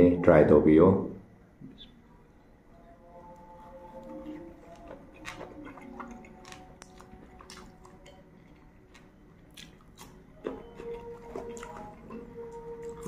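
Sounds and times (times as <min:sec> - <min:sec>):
faint steady background tones: 0:00.0 - 0:13.0
wet chewing with mouth smacks: 0:03.4 - 0:13.0.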